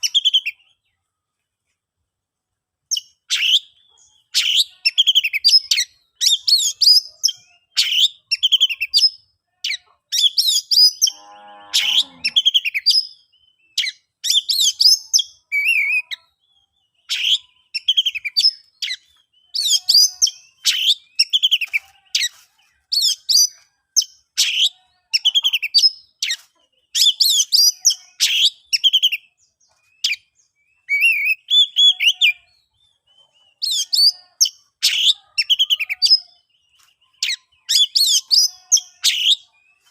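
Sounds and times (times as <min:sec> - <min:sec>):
bird singing whistled phrases: 0:13.7 - 0:16.4, 0:30.0 - 0:32.5.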